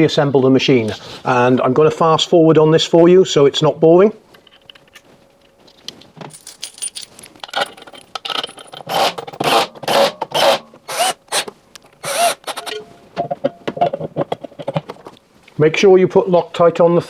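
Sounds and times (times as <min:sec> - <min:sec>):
scrapes clicks and knocks of parts: 0:04.3 - 0:15.3.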